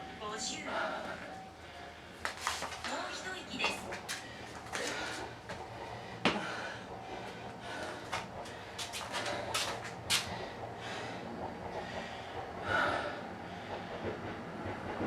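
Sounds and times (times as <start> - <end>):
person breathing hard: 4.2 - 14.2.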